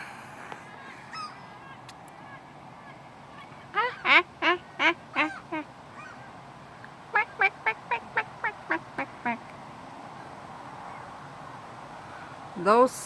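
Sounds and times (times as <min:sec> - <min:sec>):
seagull yelping calls: 0:01.1 - 0:01.4, 0:03.4 - 0:06.3.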